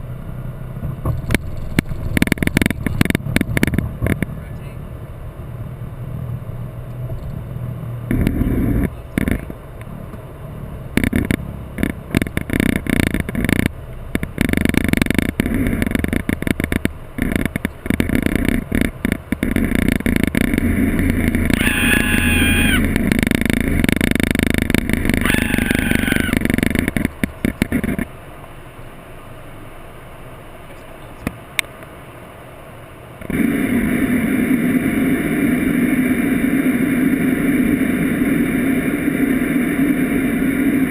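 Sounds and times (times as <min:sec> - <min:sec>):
aircraft engine running: 0:10.9 - 0:28.1, 0:33.2 - 0:40.9
short high whine: 0:19.5 - 0:26.8.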